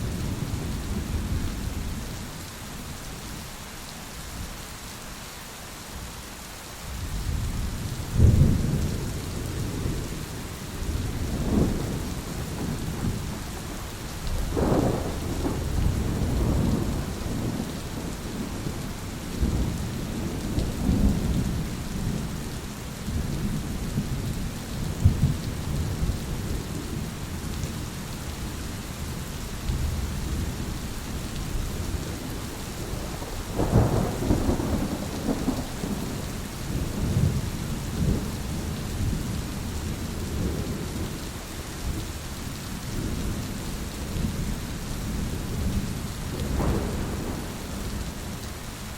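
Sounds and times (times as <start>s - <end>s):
steady rain falling: 0.0s - 48.9s
thunder rolling: 31.7s - 38.8s, 46.4s - 48.2s.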